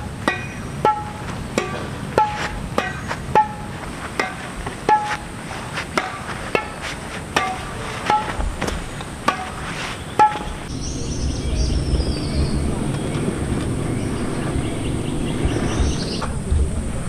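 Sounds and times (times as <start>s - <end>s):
sharp ringing strikes: 0.0s - 5.1s.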